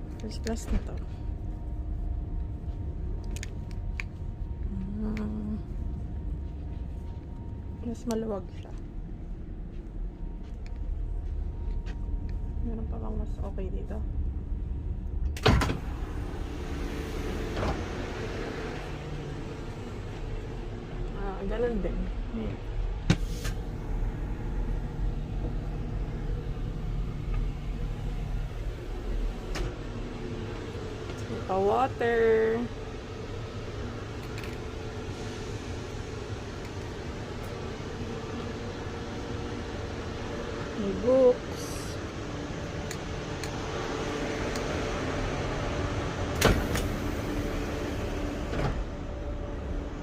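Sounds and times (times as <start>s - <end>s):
train carriage rumble and hum: 0.0s - 50.0s.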